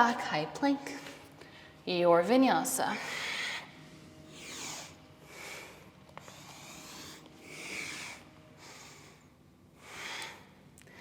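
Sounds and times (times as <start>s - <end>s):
person breathing through nose: 3.0s - 11.0s.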